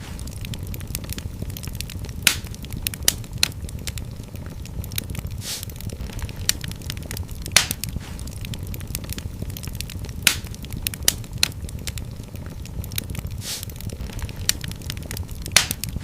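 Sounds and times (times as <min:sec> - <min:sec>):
fire crackling in a fireplace: 0:00.0 - 0:16.0
brief hiss: 0:05.4 - 0:05.7, 0:13.4 - 0:13.7.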